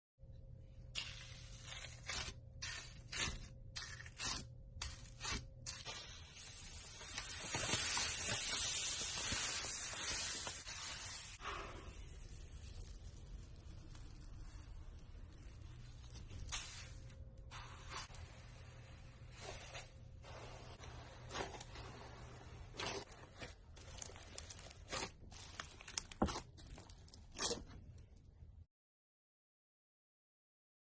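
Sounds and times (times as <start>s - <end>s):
slime squishing and crackling: 22.7s - 27.7s.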